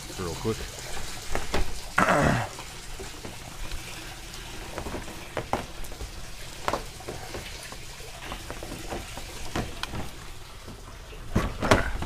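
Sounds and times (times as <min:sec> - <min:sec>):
water trickling and splashing: 0:00.0 - 0:12.0
pump handling knocks and clicks: 0:04.6 - 0:12.0.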